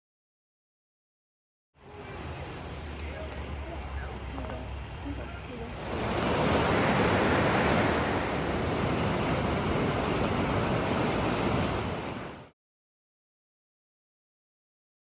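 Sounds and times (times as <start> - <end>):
floodwater rushing roar: 5.4 - 12.5.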